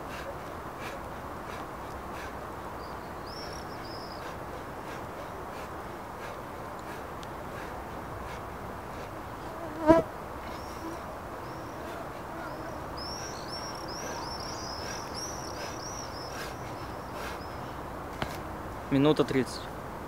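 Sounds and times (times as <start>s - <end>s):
bird chirping: 2.8s - 5.5s, 10.4s - 17.9s.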